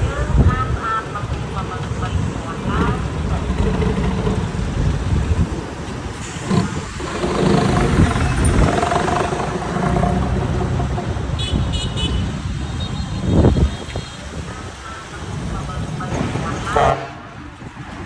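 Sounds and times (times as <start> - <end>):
diesel truck engine running: 0.0 - 12.6
vehicle horn: 6.5 - 15.3, 16.2 - 17.4.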